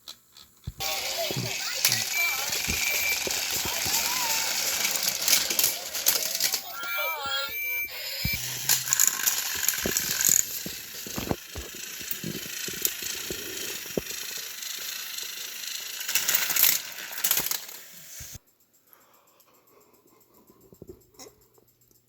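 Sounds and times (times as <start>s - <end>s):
toy trains clattering on plastic track: 0.0s - 6.6s, 8.4s - 18.4s
toy train motor whirring: 0.7s - 18.5s.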